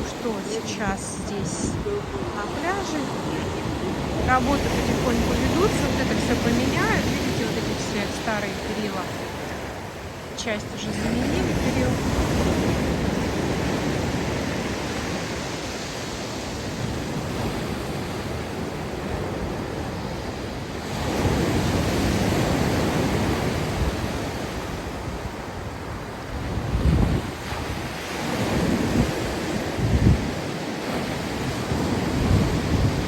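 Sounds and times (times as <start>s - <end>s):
wind rumble on microphone: 11.1s - 33.0s.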